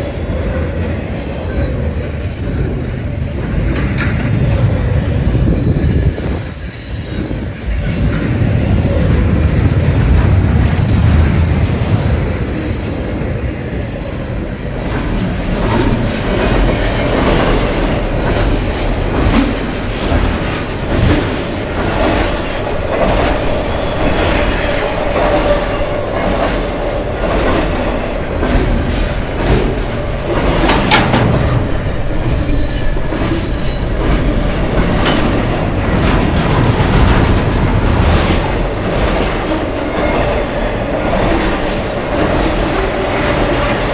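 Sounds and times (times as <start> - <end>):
thin wheel squeal: 0.0 - 10.8
train wheels clicking over rail joints: 0.0 - 13.7, 14.3 - 43.9.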